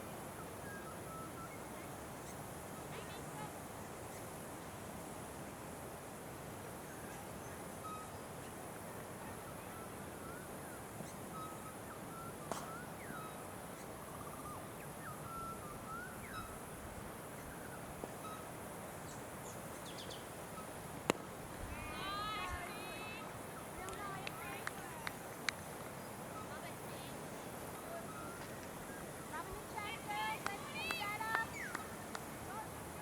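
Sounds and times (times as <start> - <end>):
steady background hiss: 0.0 - 33.0
bird chirps: 0.4 - 3.5, 9.4 - 16.6, 17.4 - 20.8, 27.8 - 29.5, 30.8 - 32.2.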